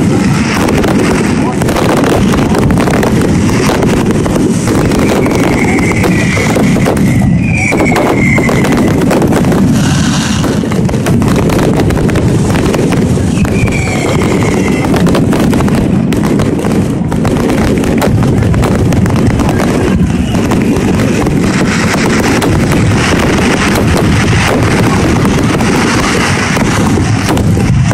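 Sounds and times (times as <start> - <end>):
fireworks bangs and crackling: 0.0 - 27.9
falling firework whistle: 3.5 - 10.6, 13.2 - 15.3, 19.4 - 27.9.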